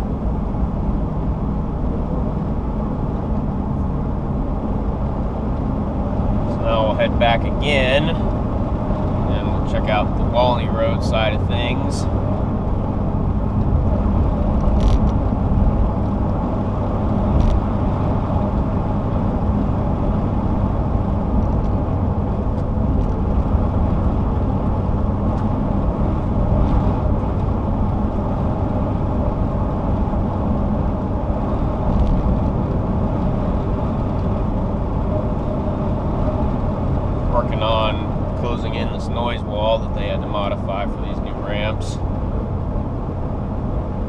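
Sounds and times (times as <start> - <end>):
car driving on highway from inside: 0.0 - 44.0.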